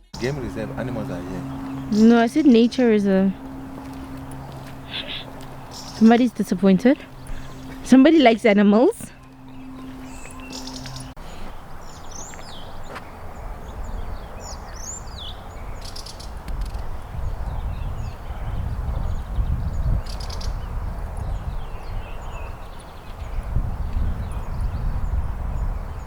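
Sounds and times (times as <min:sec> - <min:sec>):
birds chirping: 0:00.0 - 0:26.0
low rumble on microphone: 0:13.4 - 0:26.0.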